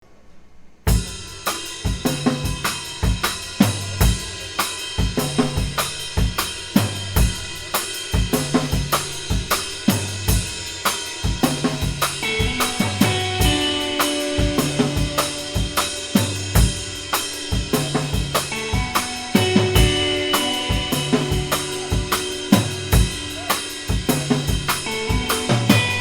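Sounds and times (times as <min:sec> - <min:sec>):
drum kit beating: 0:00.9 - 0:26.0
rock band playing live: 0:02.0 - 0:26.0.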